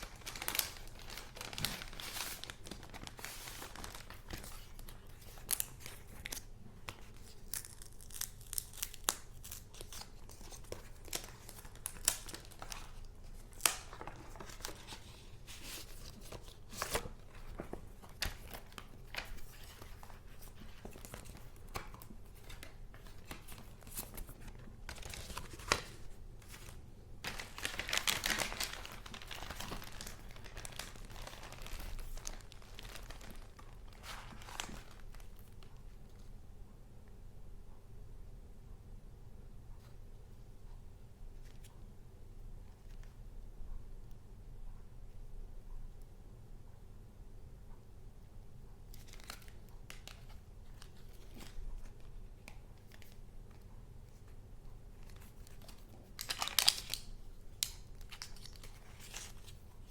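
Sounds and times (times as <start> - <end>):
paper crinkling and rustling: 0.0 - 36.3, 49.0 - 54.4, 55.0 - 59.9.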